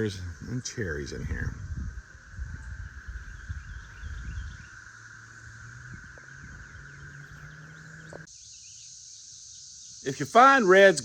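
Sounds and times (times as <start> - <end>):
wind rumbling on microphone: 0.0 - 8.3
insect drone: 0.0 - 11.0.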